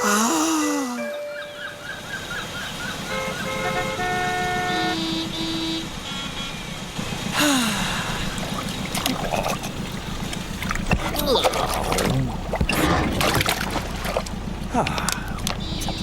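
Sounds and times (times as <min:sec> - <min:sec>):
small engine chugging: 0:06.8 - 0:16.0.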